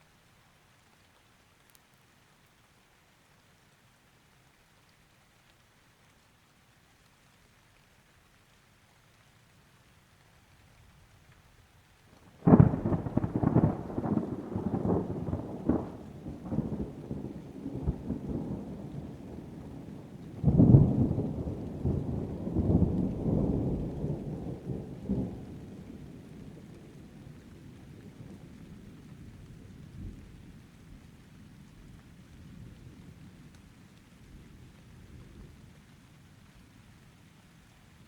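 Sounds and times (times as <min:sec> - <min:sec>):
rain: 0:00.0 - 0:38.0
thunder crack and rumble: 0:12.4 - 0:30.4.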